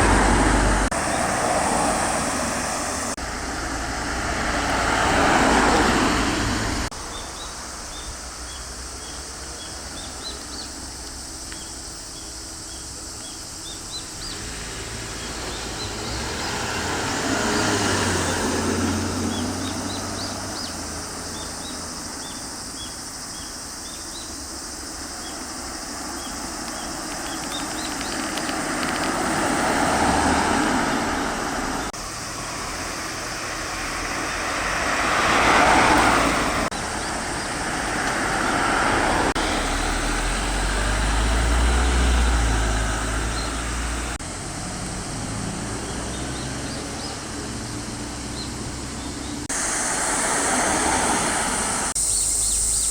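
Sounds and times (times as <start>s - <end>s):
cars driving past: 0.0s - 52.9s.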